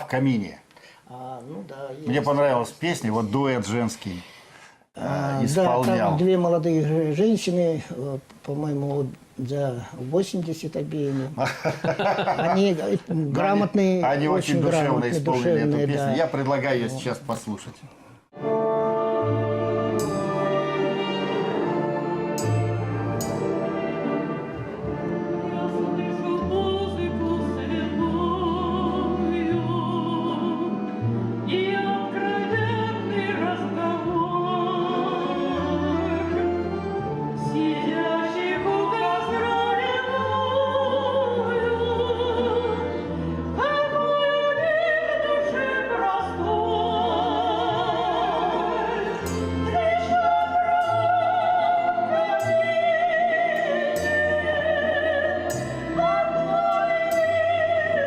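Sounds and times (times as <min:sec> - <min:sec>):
instrumental accompaniment: 0:18.3 - 0:58.0
two women singing in duet: 0:25.2 - 0:58.0.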